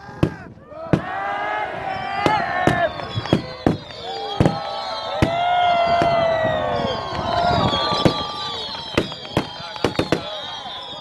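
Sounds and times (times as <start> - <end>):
falling firework whistles: 1.8 - 11.0
firework shells exploding: 2.3 - 6.2, 7.7 - 10.4.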